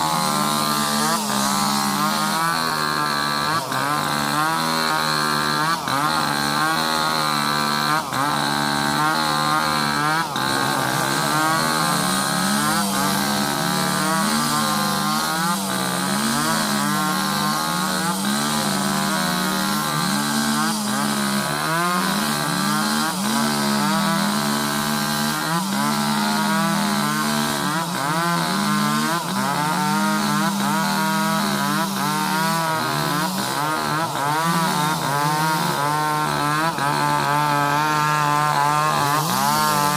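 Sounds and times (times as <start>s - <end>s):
chainsaws cutting wood: 0.0s - 39.9s.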